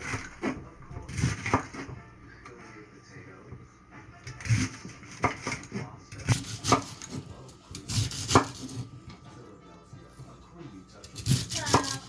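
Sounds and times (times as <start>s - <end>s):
knife chopping on cutting board: 0.0s - 2.0s, 4.3s - 8.9s, 11.0s - 12.0s.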